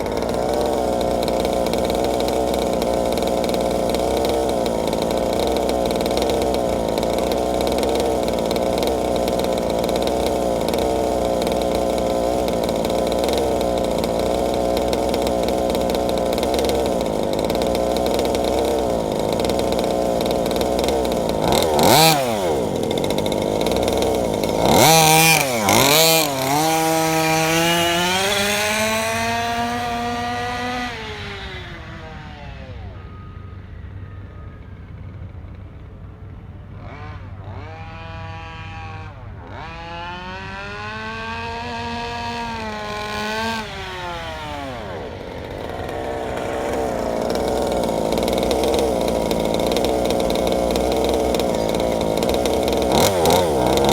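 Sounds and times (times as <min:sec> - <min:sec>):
rc car engine revving: 0:00.0 - 0:33.4, 0:36.8 - 0:53.9.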